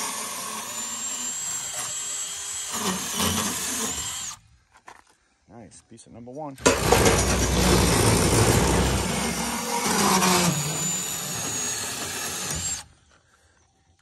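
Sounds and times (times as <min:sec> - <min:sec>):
power saw cutting metal pipe: 0:00.0 - 0:04.3, 0:06.6 - 0:12.9.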